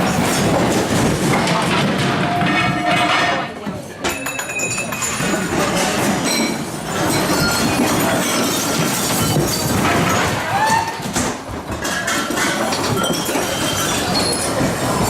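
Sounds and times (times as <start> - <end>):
furniture crashing and clattering: 0.0 - 15.0
glass and crockery breaking: 4.0 - 10.4.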